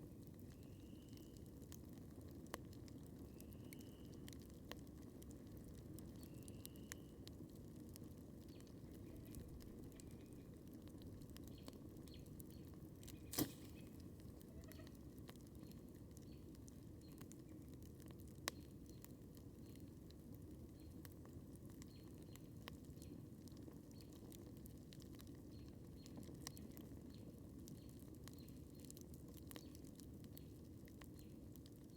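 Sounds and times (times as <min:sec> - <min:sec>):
campfire crackling faintly: 0:00.0 - 0:31.9
low steady background noise: 0:00.0 - 0:31.9
sharp fire pops: 0:13.0 - 0:14.2.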